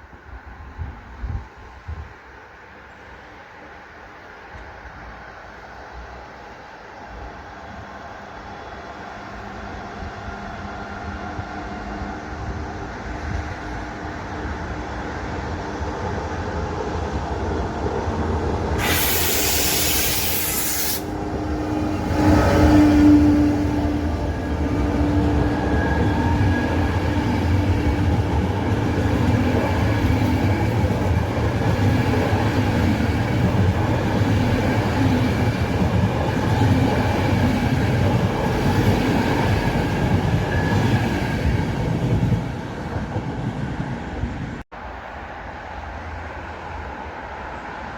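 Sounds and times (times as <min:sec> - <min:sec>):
train passing with wheel clatter: 0:00.0 - 0:47.9
short hiss: 0:18.8 - 0:21.2.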